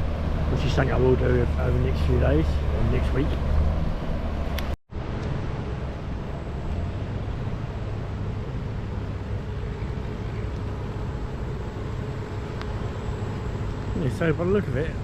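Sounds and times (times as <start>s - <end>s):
distant boat engines rumbling: 0.0s - 15.0s
faint constant hum: 5.0s - 15.0s.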